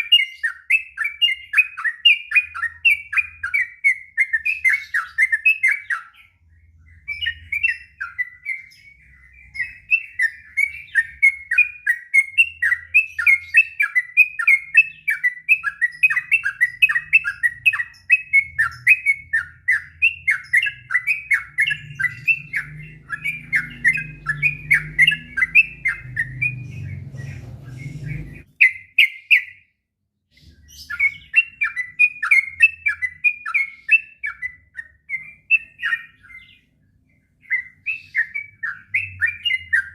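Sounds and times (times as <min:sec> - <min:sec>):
bird singing warbled notes: 0:00.0 - 0:29.7, 0:30.3 - 0:39.9
faint low rumble: 0:21.5 - 0:28.5.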